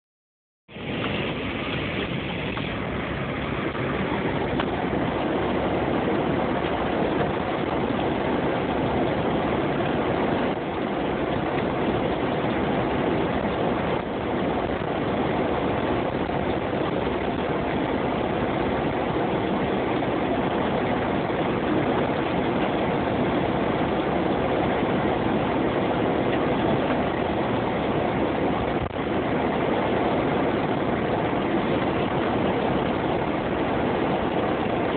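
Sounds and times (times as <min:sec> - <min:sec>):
car engine: 0:00.7 - 0:34.9
road noise: 0:00.7 - 0:34.9.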